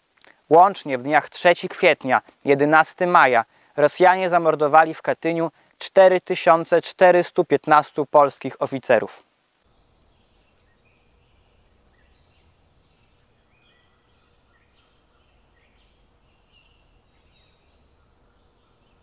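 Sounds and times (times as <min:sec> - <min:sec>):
low background hum: 0:09.4 - 0:19.0
faint birdsong chirps: 0:09.6 - 0:19.0.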